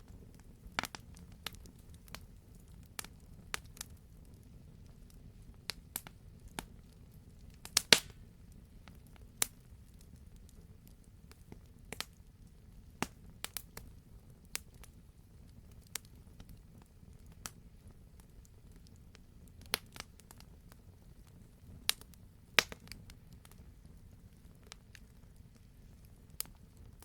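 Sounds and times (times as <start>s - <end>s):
flames rumbling: 0.0s - 27.0s
wood fire crackling: 0.0s - 27.0s.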